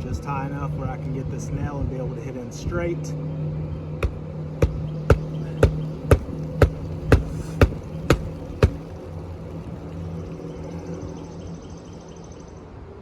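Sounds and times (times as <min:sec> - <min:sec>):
steady low hum: 0:00.0 - 0:12.4
hammer striking nail: 0:04.0 - 0:08.8.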